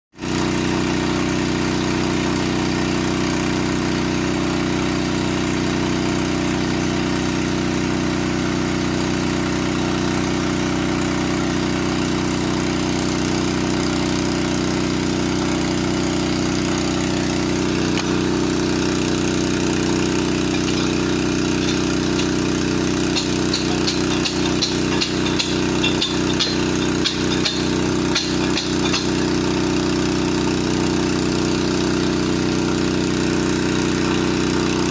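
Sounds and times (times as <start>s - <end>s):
engine running steadily: 13.4s - 34.9s
sharp knocks: 20.5s - 29.6s.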